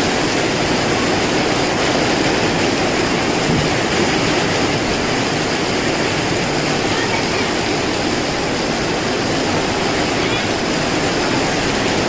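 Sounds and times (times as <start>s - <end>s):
heavy rain: 0.0s - 12.0s
strong wind: 0.0s - 12.0s.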